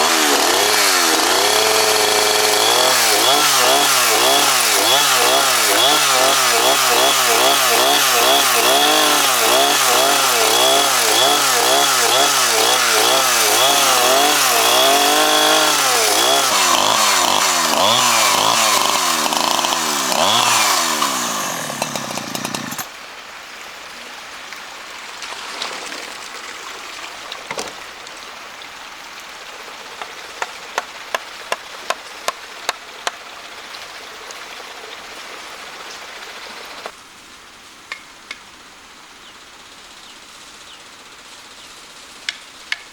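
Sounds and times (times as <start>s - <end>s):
chainsaw cutting wood: 0.0s - 23.0s.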